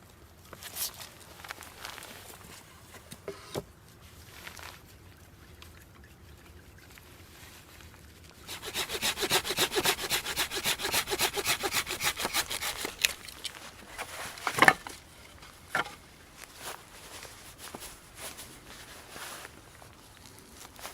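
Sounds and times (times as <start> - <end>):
hand saw cutting wood: 8.5 - 16.0
sharp wooden knock: 14.4 - 14.9.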